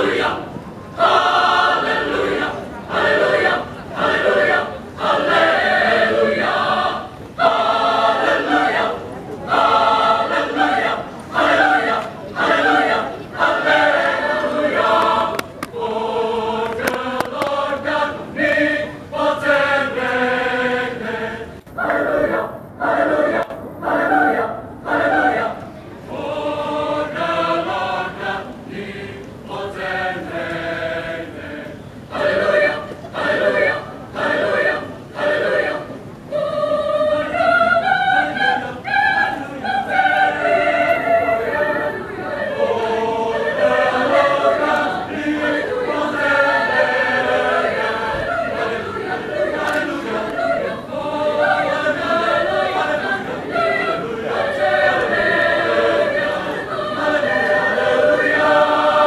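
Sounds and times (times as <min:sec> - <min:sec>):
mixed choir singing: 0:00.0 - 0:59.0.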